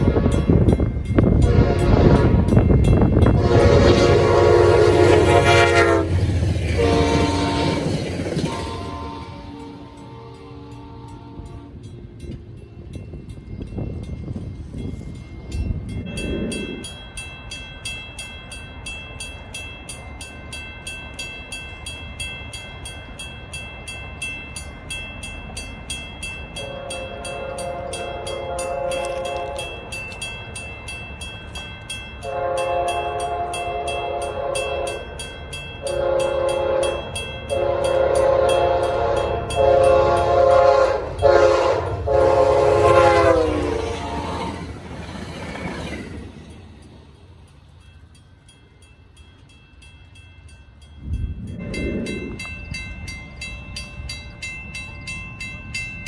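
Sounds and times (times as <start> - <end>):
train air horn blasts: 0.0 - 0.7, 1.3 - 11.9, 26.6 - 29.8, 32.2 - 35.0, 35.8 - 44.7
train rumble: 0.0 - 56.0.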